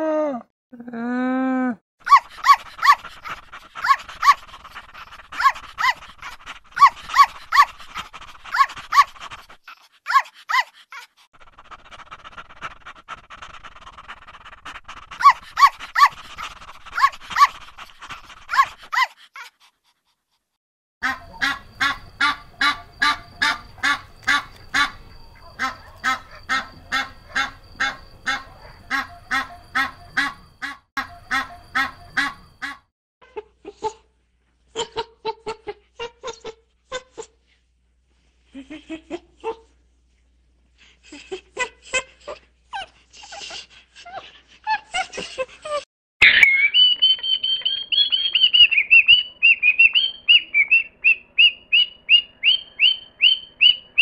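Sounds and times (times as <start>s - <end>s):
duck quacking: 21.0s - 32.8s
small dog barking: 24.8s - 30.4s.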